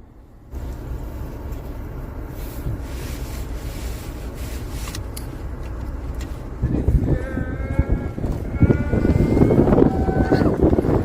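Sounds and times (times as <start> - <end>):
wind buffeting microphone: 6.4 - 11.0.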